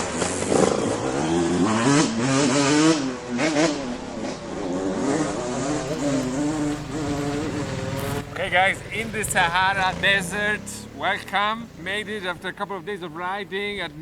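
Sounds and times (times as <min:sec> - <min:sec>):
motorcycle engine running: 0:05.8 - 0:14.0.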